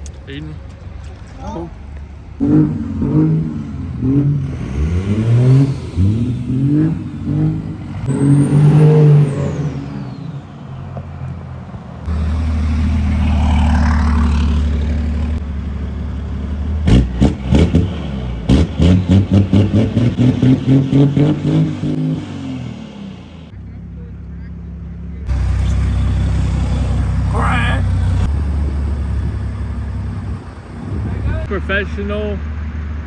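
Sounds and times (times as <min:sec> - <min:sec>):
diesel engine revving: 0:02.2 - 0:10.2, 0:12.1 - 0:15.6, 0:16.6 - 0:23.6, 0:25.3 - 0:31.9.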